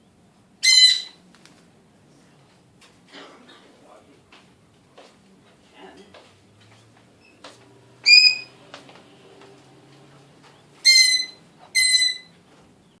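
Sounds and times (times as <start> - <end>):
parrot whistling high notes: 0.6 - 1.2, 8.0 - 8.5, 10.8 - 12.3.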